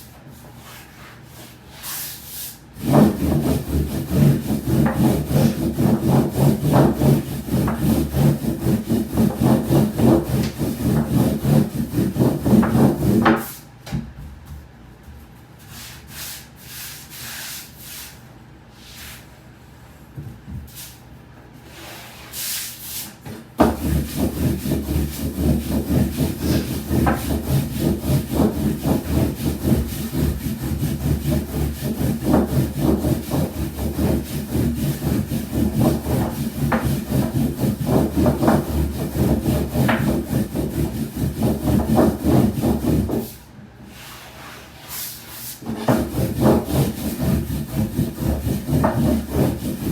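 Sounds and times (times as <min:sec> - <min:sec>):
rhythmic wooden strokes on board: 0:02.8 - 0:13.5, 0:23.6 - 0:43.4, 0:45.6 - 0:49.9.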